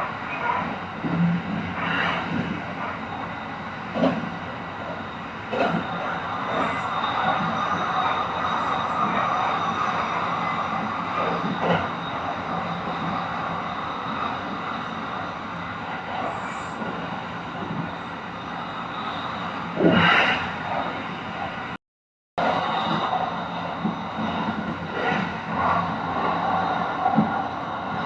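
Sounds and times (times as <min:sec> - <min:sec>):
train rumble and hiss: 0:00.0 - 0:21.8, 0:22.4 - 0:28.0.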